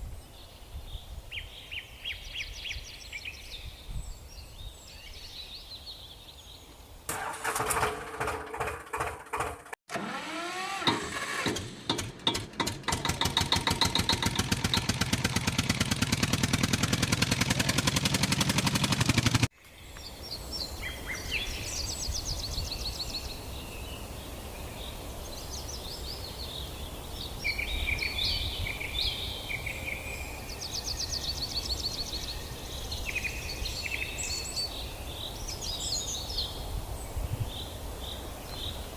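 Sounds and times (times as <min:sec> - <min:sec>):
outdoor background noise: 0:00.0 - 0:38.9
engine cranking and running: 0:07.1 - 0:19.5
birds chirping: 0:11.7 - 0:24.1.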